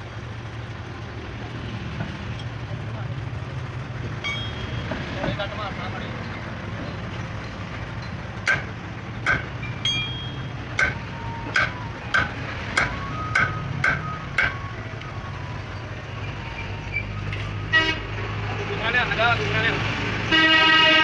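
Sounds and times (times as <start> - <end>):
low engine hum: 0.0 - 21.0
hammer striking metal: 4.2 - 5.4, 8.0 - 14.6.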